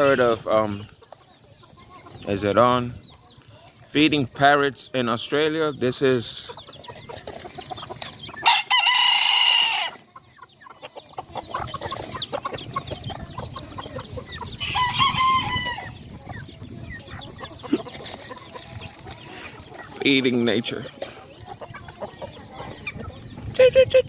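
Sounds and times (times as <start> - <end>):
chickens clucking: 0.0 - 24.0
rooster crowing: 8.4 - 10.0, 14.7 - 16.0.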